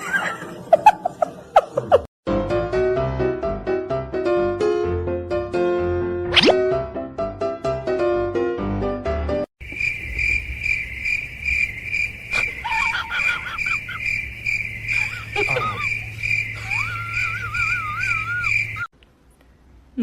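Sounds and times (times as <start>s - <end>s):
piano music: 2.3s - 9.5s
cricket chirping: 9.6s - 18.9s
high wavering gliding calls: 14.9s - 18.9s.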